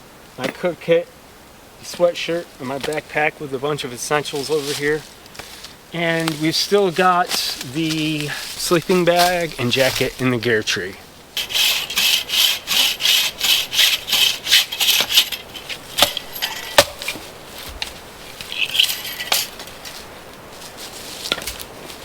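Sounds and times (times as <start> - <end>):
rhythmic rasping strokes: 11.4 - 20.0.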